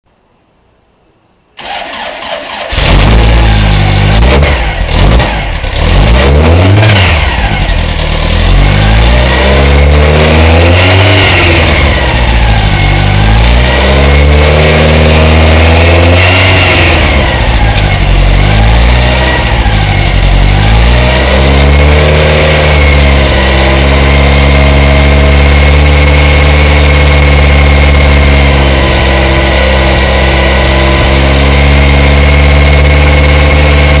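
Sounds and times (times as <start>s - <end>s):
starter motor cranking: 1.6s - 4.1s
car engine revving and idling: 1.9s - 34.0s.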